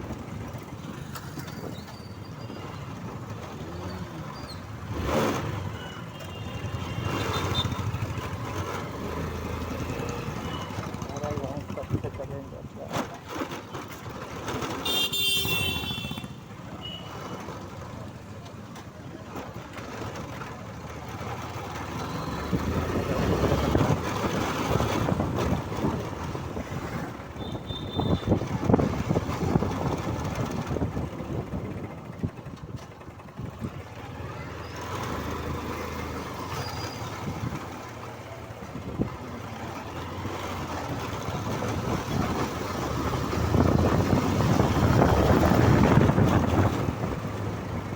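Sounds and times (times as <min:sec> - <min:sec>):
motorcycle road and wind noise: 0:00.0 - 0:47.9
vehicle horn: 0:14.8 - 0:17.2, 0:27.4 - 0:28.4.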